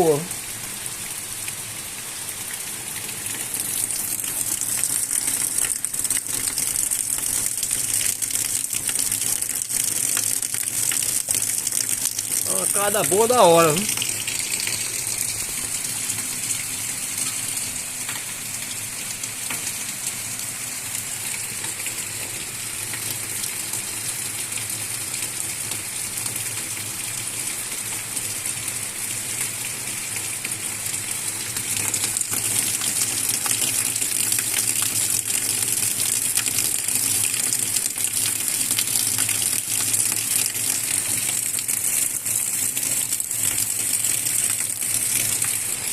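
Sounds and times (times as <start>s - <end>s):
heavy rain falling: 12.4s - 14.0s.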